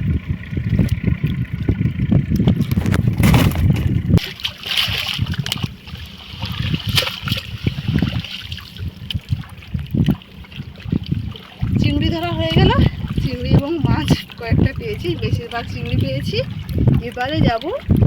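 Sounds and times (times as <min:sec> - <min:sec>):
low rumble: 0:00.0 - 0:18.0
river water splashing and trickling: 0:00.0 - 0:18.0
small splashes and clicks: 0:04.2 - 0:18.0.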